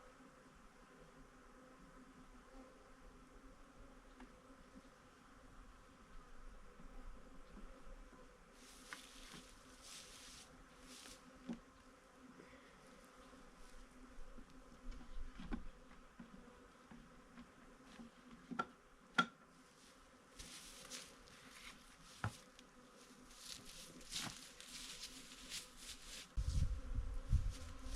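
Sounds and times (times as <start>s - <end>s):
honeybees buzzing: 19.8s - 27.9s.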